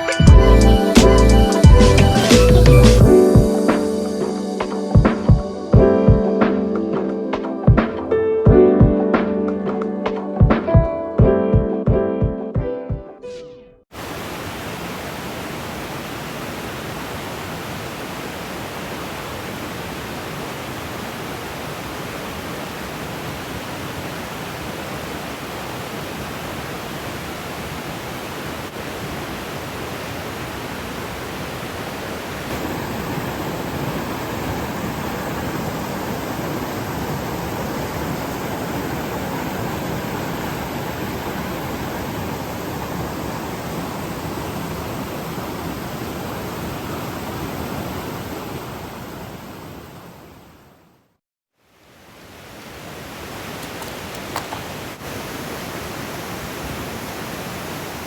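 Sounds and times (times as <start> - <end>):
stream rushing over rocks: 13.9 - 50.1, 51.7 - 58.0.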